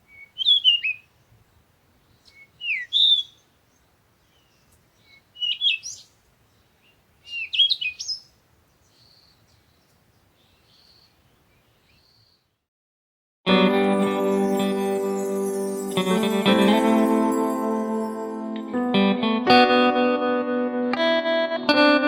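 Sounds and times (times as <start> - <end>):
birds chirping: 0.0 - 12.6.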